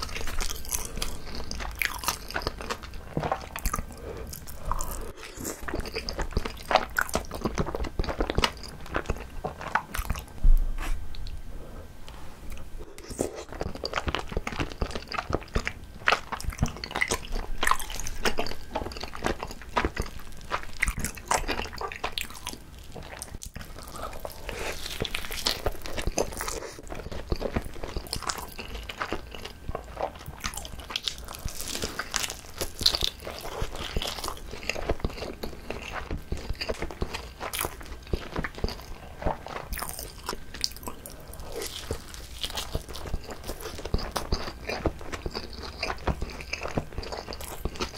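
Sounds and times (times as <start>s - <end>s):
wet chewing and smacking: 0.0s - 10.4s, 12.5s - 47.9s.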